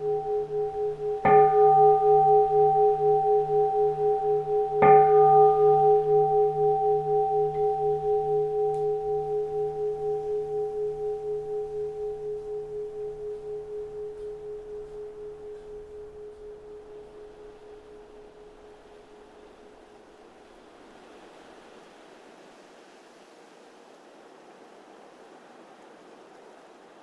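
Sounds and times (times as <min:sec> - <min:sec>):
bowl bell ringing: 0:00.0 - 0:19.9.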